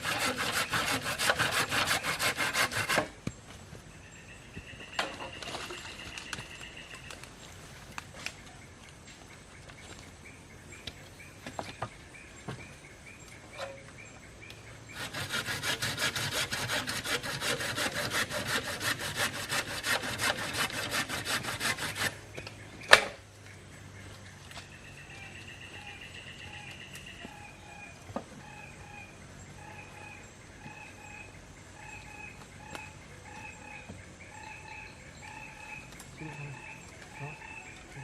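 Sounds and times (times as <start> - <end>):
hand saw cutting wood: 0.0 - 3.2, 14.9 - 22.2.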